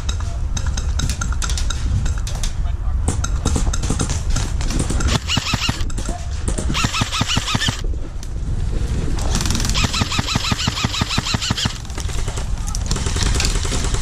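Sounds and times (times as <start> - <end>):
airsoft rifles firing full-auto: 4.7 - 5.9, 6.7 - 7.8, 9.3 - 14.0.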